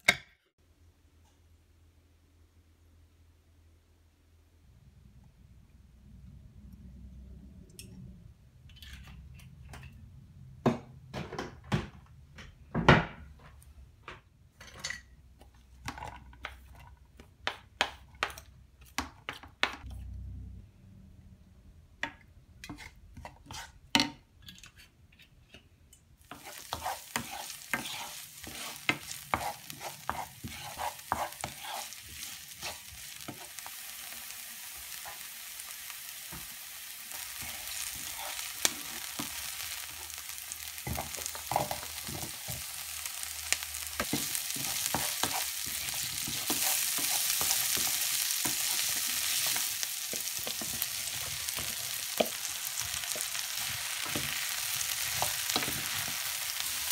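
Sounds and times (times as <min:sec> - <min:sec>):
onions and garlic sizzling: 0:26.2 - 0:56.9.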